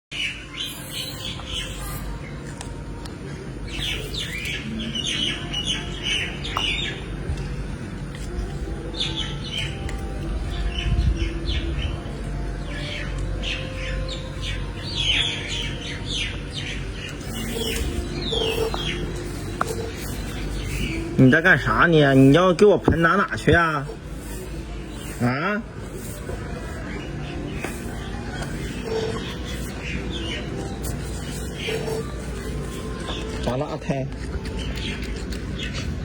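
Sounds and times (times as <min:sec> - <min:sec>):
birds chirping: 0:00.1 - 0:36.0
steady low hum: 0:01.7 - 0:36.0.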